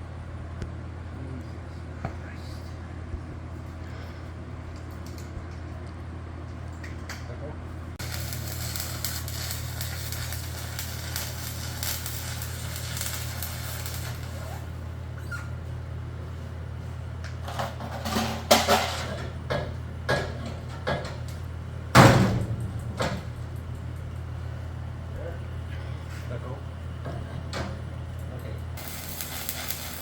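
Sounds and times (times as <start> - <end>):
crackling hiss: 8.0 - 14.7, 28.8 - 30.0.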